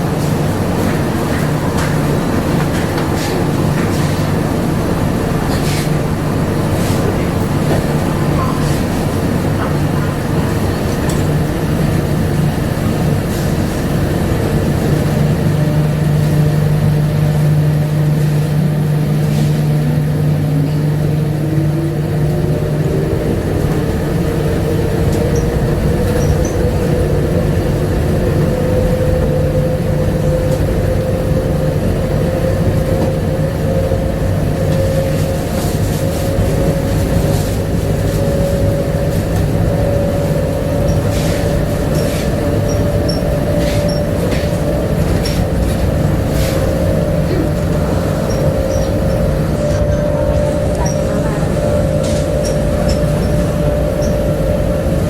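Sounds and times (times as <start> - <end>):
train car hum and rumble: 0.0 - 55.0.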